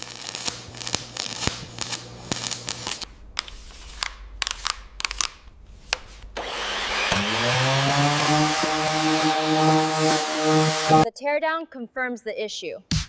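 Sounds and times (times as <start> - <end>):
low hum: 3.0 - 11.0
power tool hissing: 6.4 - 11.0.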